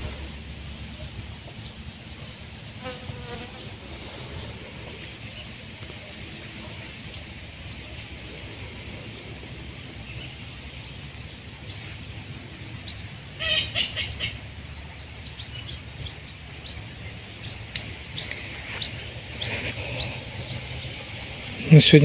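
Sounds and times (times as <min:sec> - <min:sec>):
steady low rumble: 0:00.0 - 0:22.0
harsh bird calls: 0:09.0 - 0:22.0.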